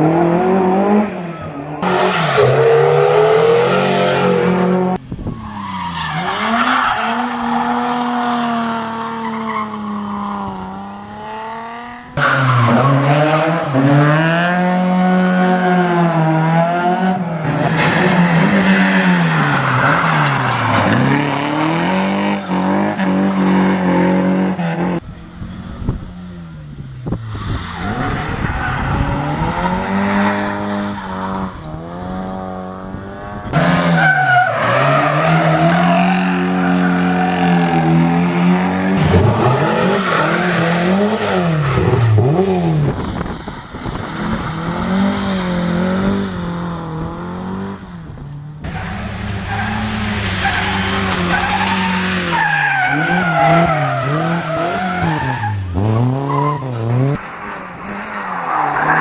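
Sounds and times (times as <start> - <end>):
rally car engines revving: 0.0 - 59.0
tyres squealing and skidding: 0.8 - 10.8, 12.1 - 14.4, 17.3 - 24.8, 26.5 - 32.0, 33.6 - 42.4, 48.6 - 59.0.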